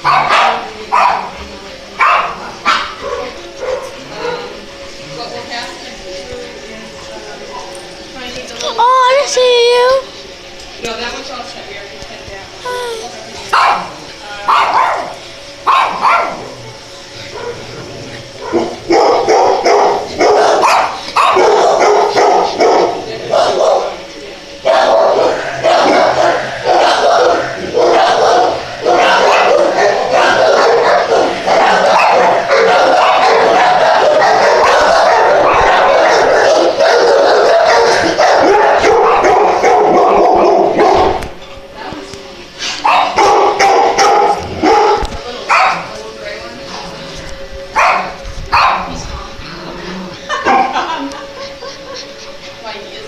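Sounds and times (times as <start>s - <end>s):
dogs barking: 0.0s - 4.9s, 13.4s - 41.4s, 42.8s - 46.0s, 47.6s - 52.5s.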